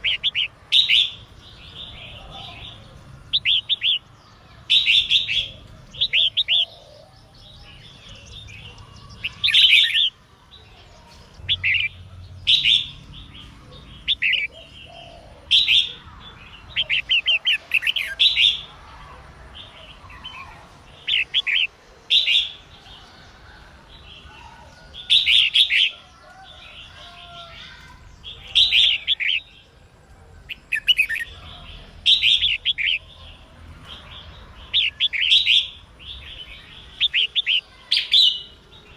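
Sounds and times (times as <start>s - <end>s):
bulbul singing: 0.0s - 18.9s, 19.6s - 38.9s.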